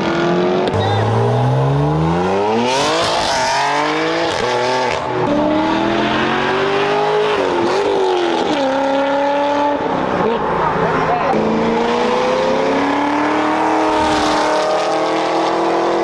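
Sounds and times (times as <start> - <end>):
car engine at full throttle: 0.0 - 16.0.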